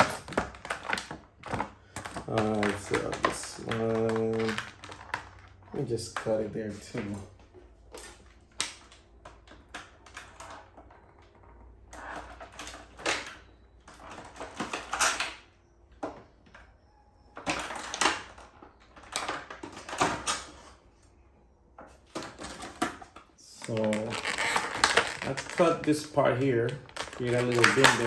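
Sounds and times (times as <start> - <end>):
plastic packaging rustling: 0.0 - 15.4, 22.0 - 28.0
plastic ties being snipped: 23.6 - 28.0.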